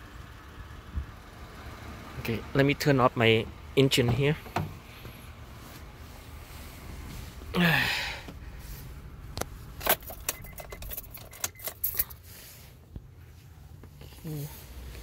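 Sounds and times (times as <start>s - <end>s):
ignition key clicks: 9.4s - 12.2s
car keys jangling: 9.7s - 12.3s.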